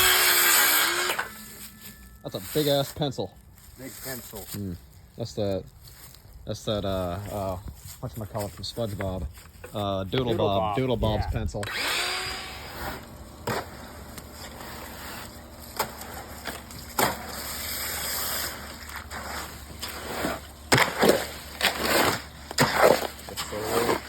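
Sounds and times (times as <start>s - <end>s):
knocks and clatters of building work: 7.0s - 10.4s, 11.6s - 24.0s.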